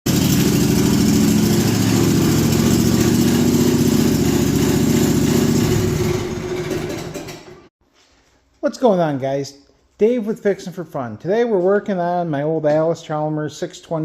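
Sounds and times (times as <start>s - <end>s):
garden tractor engine running: 0.1s - 7.7s.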